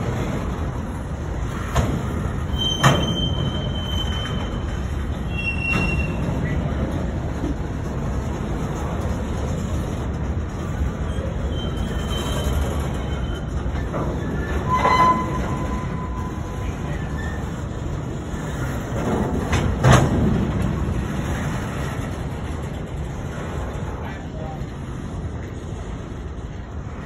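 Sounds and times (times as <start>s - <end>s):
train wheels rumbling on rails: 0.0s - 27.0s
wheel squeal: 1.4s - 7.0s, 10.5s - 20.2s.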